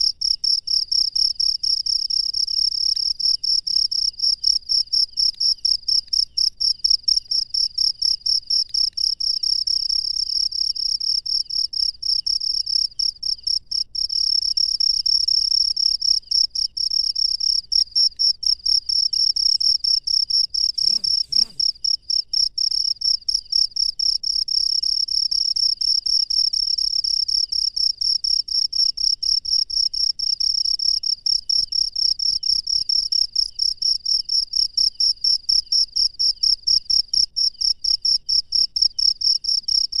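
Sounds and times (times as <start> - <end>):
lower-pitched insect chirping: 0.0 - 27.9
crickets chirping: 0.0 - 40.0.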